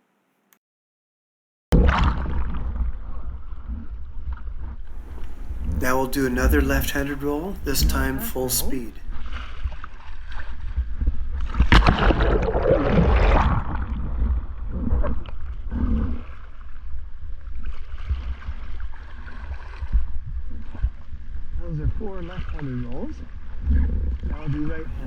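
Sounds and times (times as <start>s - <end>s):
water splashing and sloshing: 1.8s - 21.5s
steady low rumble: 4.9s - 8.8s.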